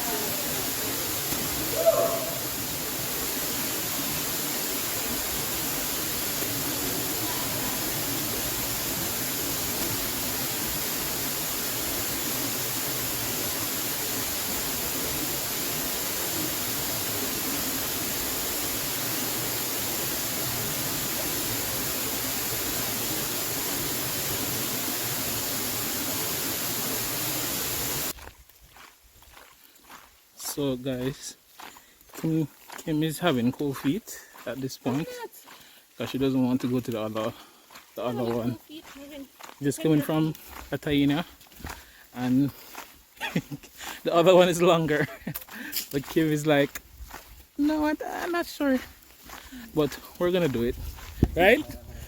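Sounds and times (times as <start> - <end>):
waterfall rushing: 0.0 - 28.1, 51.4 - 52.0.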